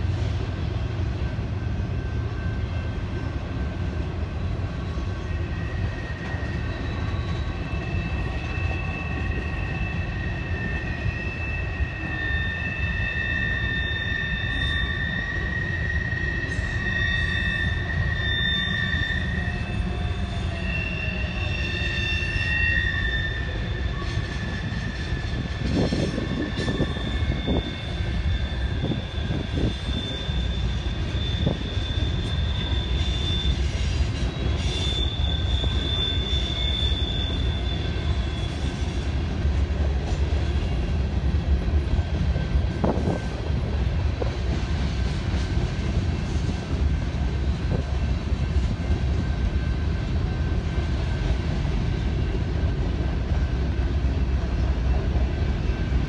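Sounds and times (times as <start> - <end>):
freight train rumbling: 0.0 - 56.0
wheel flanges squealing: 3.6 - 43.7.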